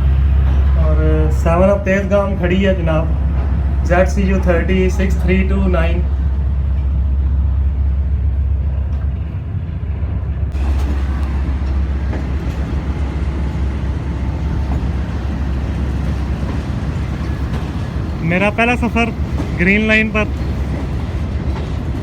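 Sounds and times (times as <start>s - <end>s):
locomotive engine drone: 0.0s - 22.0s.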